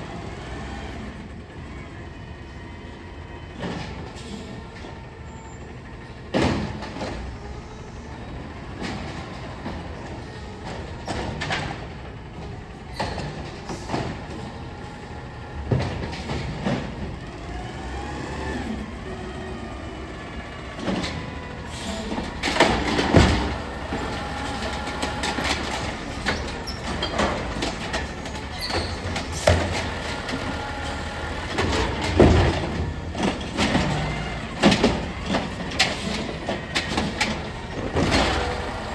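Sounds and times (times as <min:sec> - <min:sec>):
garbage truck engine running: 0:00.0 - 0:38.9
metal clanks and bangs: 0:20.8 - 0:38.9.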